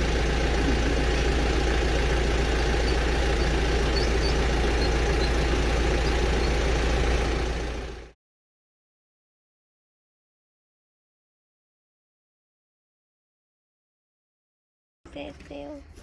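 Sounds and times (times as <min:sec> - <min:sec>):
engine idling: 0:00.0 - 0:08.2.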